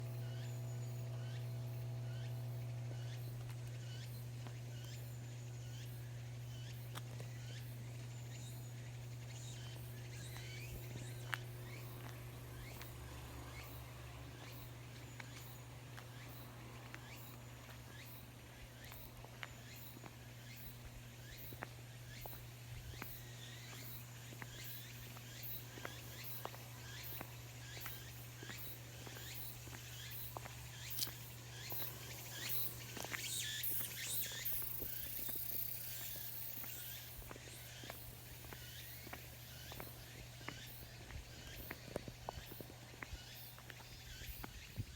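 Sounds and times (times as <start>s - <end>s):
cicadas singing: 0.0s - 44.9s
steady low hum: 0.0s - 44.9s
footsteps: 14.1s - 44.9s.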